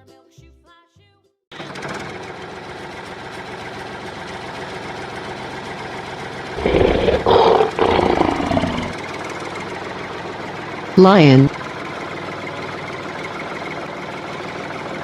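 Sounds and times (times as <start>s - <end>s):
lion roaring: 6.6s - 9.0s.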